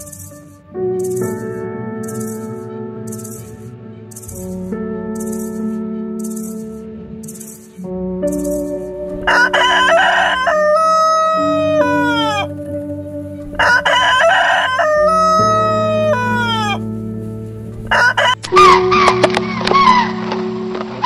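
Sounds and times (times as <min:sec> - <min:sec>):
soft background music: 0:00.0 - 0:21.0
rooster crowing: 0:09.3 - 0:12.5, 0:13.6 - 0:16.9, 0:17.9 - 0:19.2.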